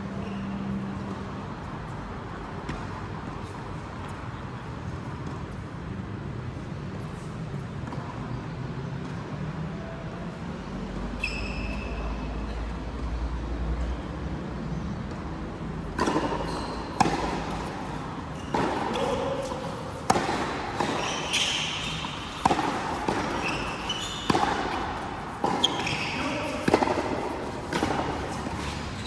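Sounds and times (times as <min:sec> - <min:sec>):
short high squeaks: 0:11.2 - 0:12.1, 0:16.2 - 0:29.0
racket striking ball: 0:15.9 - 0:29.0.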